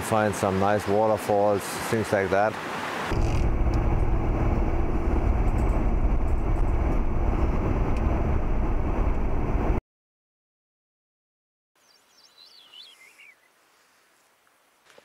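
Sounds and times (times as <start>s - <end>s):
car interior road rumble: 3.1s - 9.8s.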